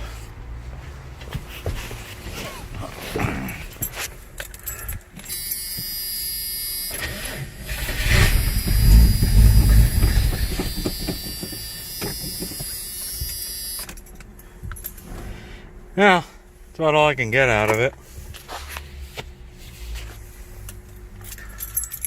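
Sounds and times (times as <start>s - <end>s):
engine cranking on starter: 6.9s - 12.7s
engine firing and running: 6.9s - 13.4s.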